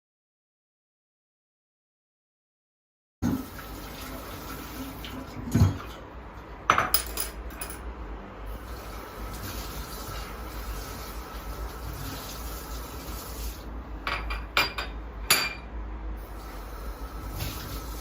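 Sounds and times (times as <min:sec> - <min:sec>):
dishes clattering: 0:06.7 - 0:07.8, 0:14.1 - 0:15.6
dishes and cutlery handled: 0:06.8 - 0:07.8, 0:14.1 - 0:15.6.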